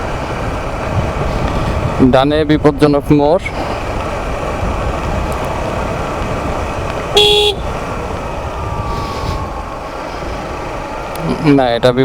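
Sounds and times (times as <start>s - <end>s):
motorcycle wind and road rush: 0.0s - 12.0s
short horn beep: 7.2s - 7.7s.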